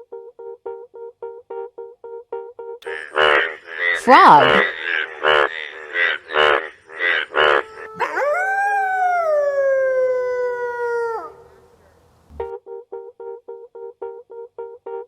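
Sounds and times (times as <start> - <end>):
frog croaks: 2.8 - 8.6
wolf howling: 7.5 - 11.9.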